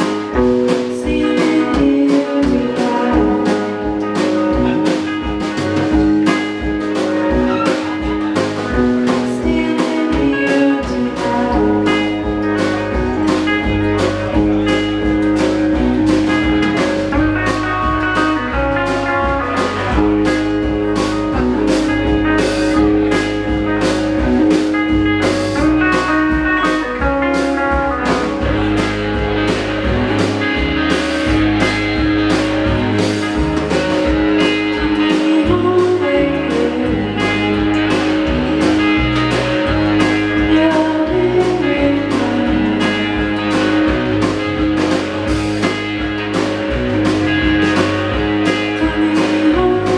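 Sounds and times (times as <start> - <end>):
person singing: 0.0 - 5.1, 7.2 - 12.7, 34.4 - 38.3, 40.0 - 43.6, 48.4 - 49.9
electric guitar: 0.0 - 49.9
steady drum beat: 0.0 - 49.9.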